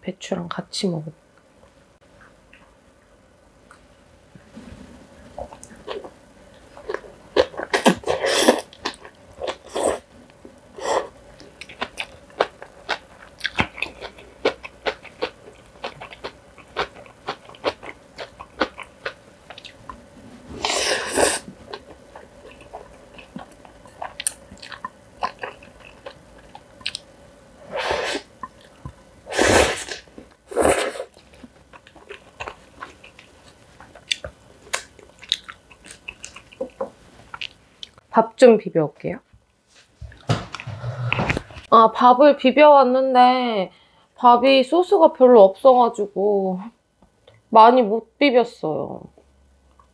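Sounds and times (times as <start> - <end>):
crunchy chewing clicks: 11.3 - 20.0, 21.7 - 27.1, 31.1 - 38.0.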